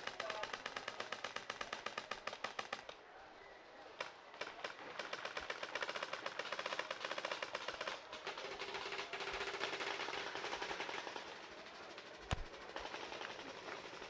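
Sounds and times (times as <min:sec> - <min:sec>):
paintball markers firing: 0:12.3 - 0:13.9.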